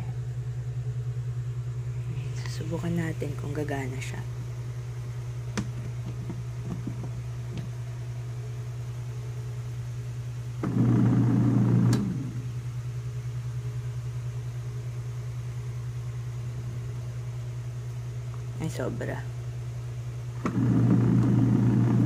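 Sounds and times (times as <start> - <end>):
spin dryer motor humming: 0.0 - 22.0
timer knob buzz: 10.5 - 12.6, 20.4 - 22.0.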